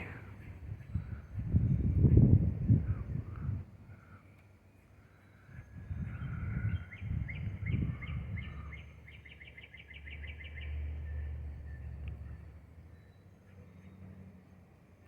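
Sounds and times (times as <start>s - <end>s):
wind buffeting microphone: 0.0s - 3.9s, 5.4s - 9.1s.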